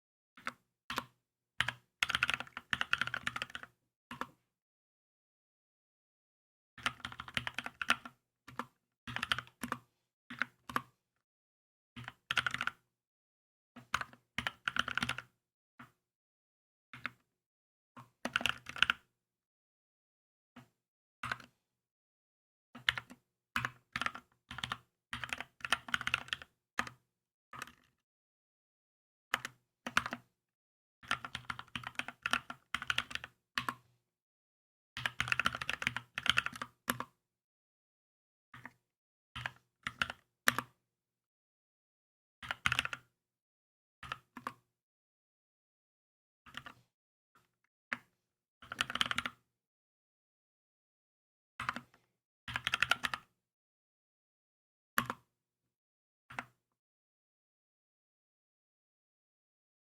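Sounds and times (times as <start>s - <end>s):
mechanical keyboard typing: 1.7s - 3.6s, 35.0s - 37.0s.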